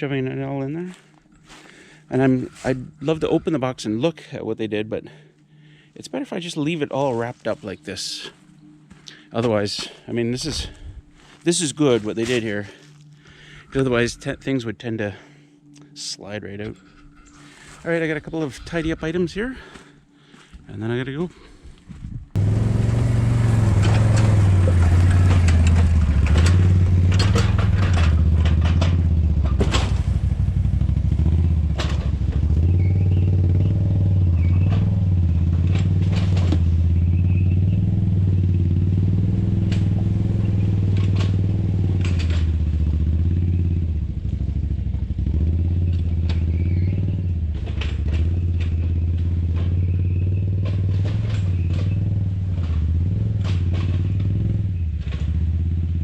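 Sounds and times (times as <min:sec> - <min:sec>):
rattles and knocks: 0:22.4 - 0:32.8, 0:33.9 - 0:37.0, 0:39.4 - 0:43.5, 0:44.8 - 0:55.9
atv engine running: 0:22.4 - 0:56.0.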